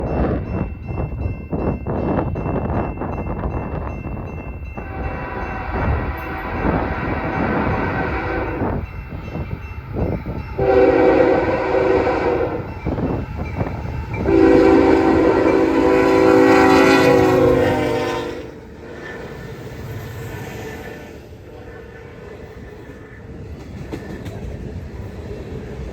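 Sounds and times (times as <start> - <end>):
wind on microphone: 0.0 - 20.5
train rumble: 0.0 - 25.9
locomotive air horn blasts: 4.8 - 8.8, 10.6 - 12.9, 14.2 - 18.6.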